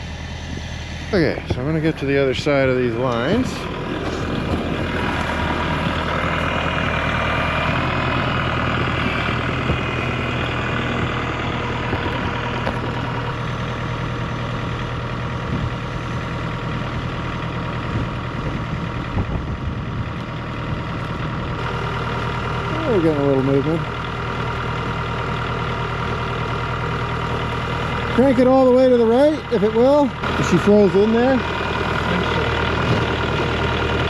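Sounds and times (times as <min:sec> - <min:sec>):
truck engine idling: 0:00.0 - 0:34.0.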